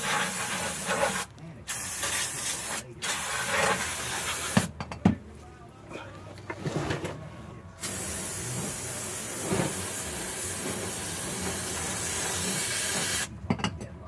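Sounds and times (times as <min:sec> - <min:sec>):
aerosol can spraying: 0:00.0 - 0:04.7.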